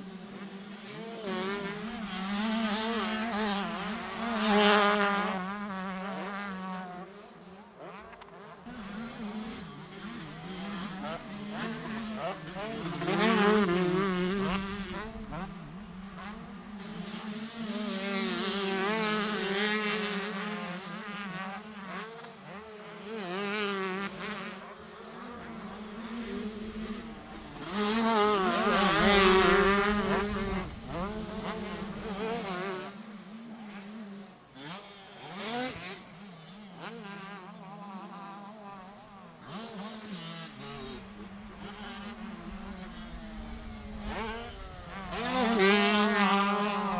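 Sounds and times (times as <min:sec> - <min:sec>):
motocross bikes revving: 0:07.8 - 0:46.9.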